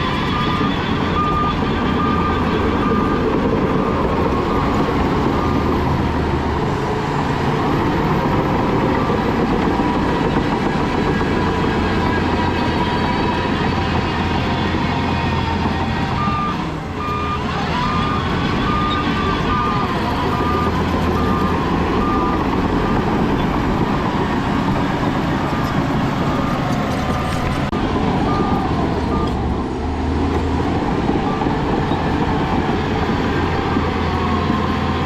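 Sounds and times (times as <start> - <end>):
reversing alarm beeping: 0.0 - 5.9, 10.9 - 23.6, 28.0 - 29.9
heavy diesel machinery engine: 0.0 - 35.0.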